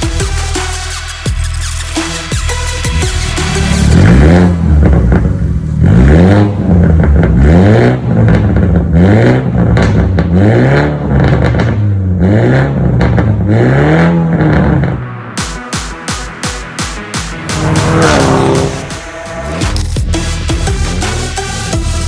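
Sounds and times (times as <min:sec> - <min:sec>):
car engine revving: 0:02.8 - 0:15.5, 0:17.1 - 0:21.4.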